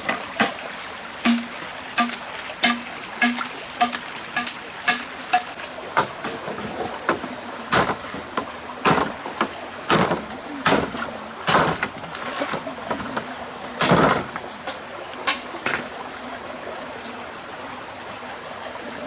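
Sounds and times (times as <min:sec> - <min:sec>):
sharp knocks: 0:01.2 - 0:12.0.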